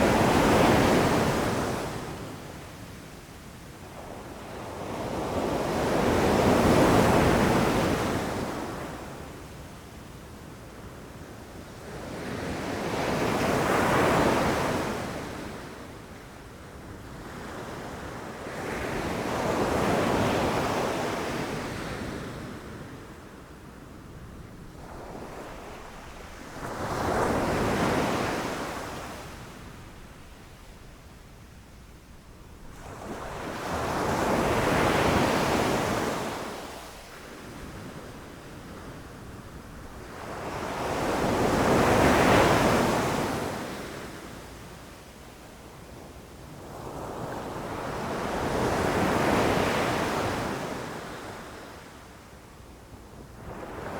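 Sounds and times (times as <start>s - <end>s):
ocean waves crashing on beach: 24.7s - 30.4s, 32.7s - 43.7s.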